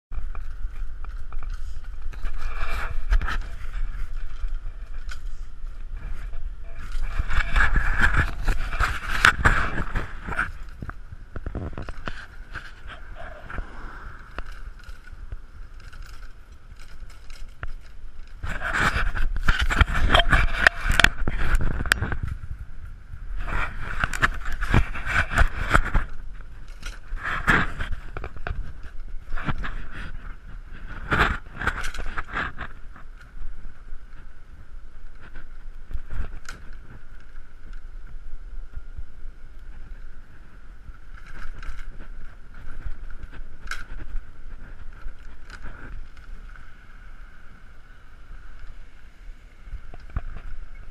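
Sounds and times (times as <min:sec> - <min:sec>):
bicycle rattling and clattering: 0:00.1 - 0:50.9
bicycle riding whir: 0:00.1 - 0:50.9
wind buffeting microphone: 0:00.1 - 0:50.9.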